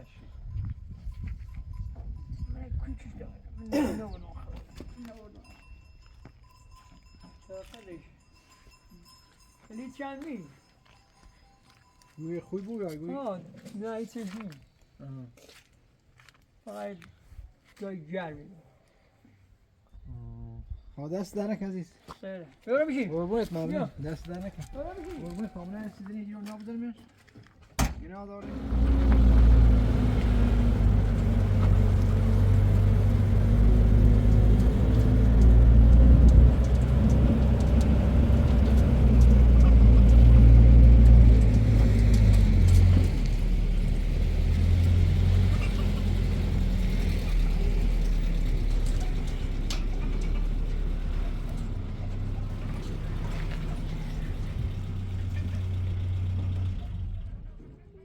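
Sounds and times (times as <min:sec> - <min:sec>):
car engine humming: 0:28.4 - 0:57.5.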